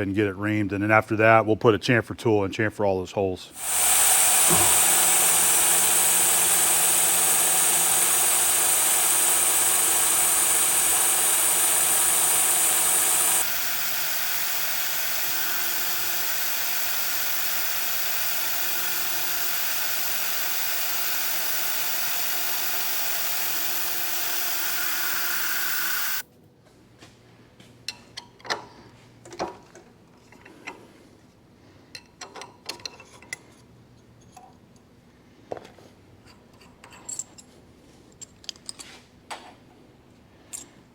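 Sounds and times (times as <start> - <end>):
milling machine running: 3.6 - 26.2
mist coolant spray hissing: 3.6 - 26.2.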